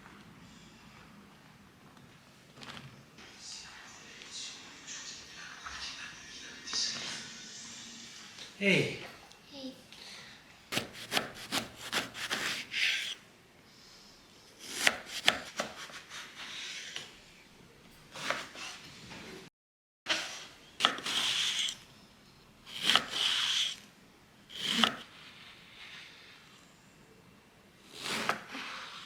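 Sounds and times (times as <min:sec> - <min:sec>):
knife chopping on wooden board: 0:10.7 - 0:13.2, 0:14.7 - 0:16.0, 0:22.8 - 0:23.3, 0:24.6 - 0:25.0
knife scraping board: 0:10.7 - 0:13.2, 0:14.6 - 0:17.1, 0:18.1 - 0:18.8, 0:20.1 - 0:21.8, 0:22.7 - 0:23.8, 0:24.5 - 0:26.1, 0:27.9 - 0:29.0.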